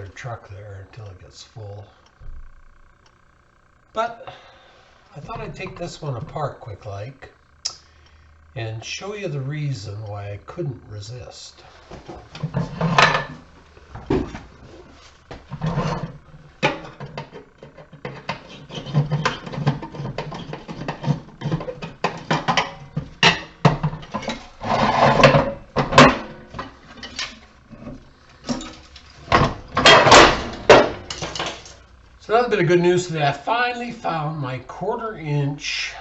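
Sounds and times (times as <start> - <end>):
metallic clattering and rattling: 28.4 - 31.8.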